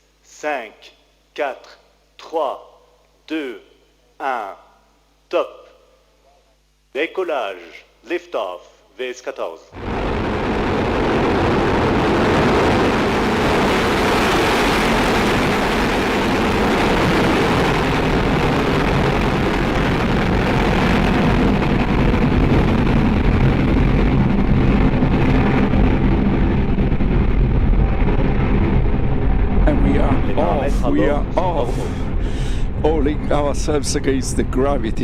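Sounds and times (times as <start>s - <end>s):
rocket engines rumbling: 9.7s - 35.0s.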